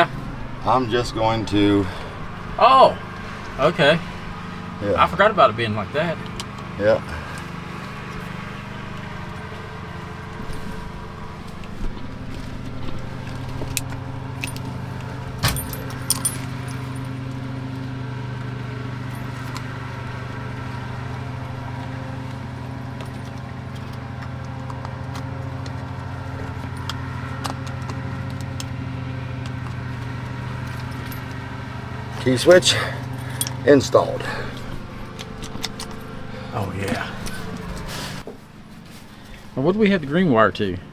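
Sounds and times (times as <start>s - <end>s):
steady low hum: 0.0s - 40.9s
small metal clinks: 6.2s - 38.2s
keys jangling: 13.2s - 17.7s, 30.6s - 31.4s, 32.0s - 38.2s.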